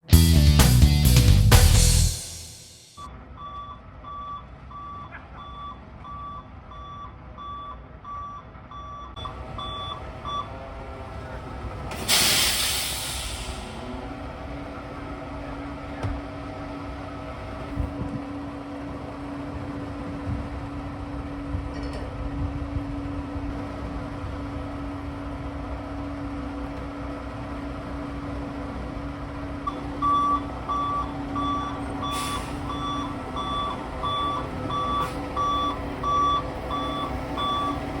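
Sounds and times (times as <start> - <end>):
diesel engine drone: 0.0 - 8.1, 9.1 - 38.0
reversing alarm beeping: 3.0 - 10.5, 29.7 - 38.0
air brakes hissing: 11.8 - 14.0, 31.7 - 33.2, 34.9 - 35.5.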